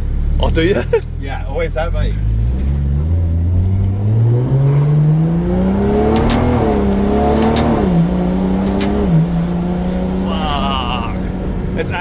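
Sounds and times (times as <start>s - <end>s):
car engine accelerating: 0.0s - 12.0s
sharp clicks: 5.9s - 9.5s.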